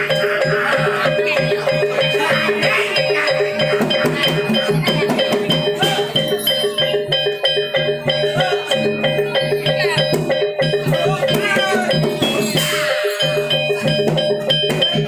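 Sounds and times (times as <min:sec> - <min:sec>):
drums: 0:00.0 - 0:15.0
gamelan music: 0:00.0 - 0:15.0.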